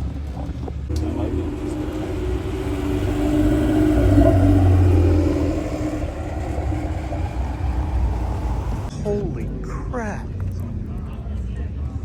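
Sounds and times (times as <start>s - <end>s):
car engine rumbling: 0.9s - 9.0s.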